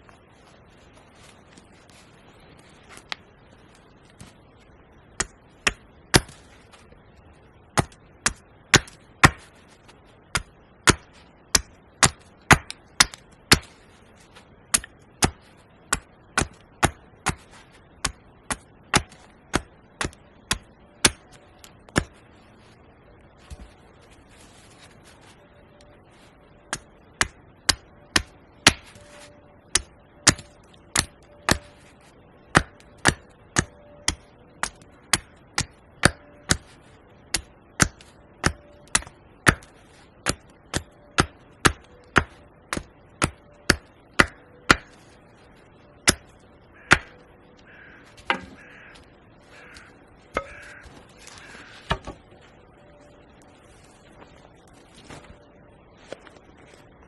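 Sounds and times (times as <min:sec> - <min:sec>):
axe chopping wood: 0:05.2 - 0:06.4, 0:07.7 - 0:09.5, 0:10.3 - 0:13.8, 0:14.7 - 0:22.2, 0:26.7 - 0:29.0, 0:29.7 - 0:31.8, 0:32.5 - 0:36.7, 0:37.3 - 0:45.0, 0:46.9 - 0:47.2, 0:48.2 - 0:48.6, 0:50.3 - 0:52.3
crow-like caws: 0:46.7 - 0:51.9.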